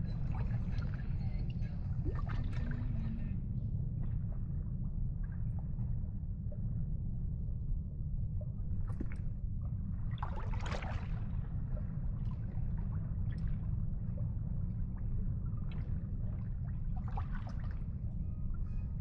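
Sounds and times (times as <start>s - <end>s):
steady low rumble: 0.0s - 19.0s
water splashing and lapping: 10.2s - 11.3s.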